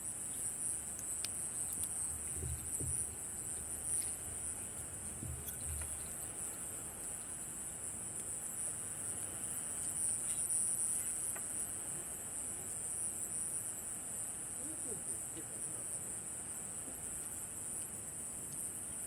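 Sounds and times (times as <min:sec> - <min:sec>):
night insects chirring: 0:00.0 - 0:19.0
low thumps: 0:02.0 - 0:03.5, 0:05.1 - 0:06.1.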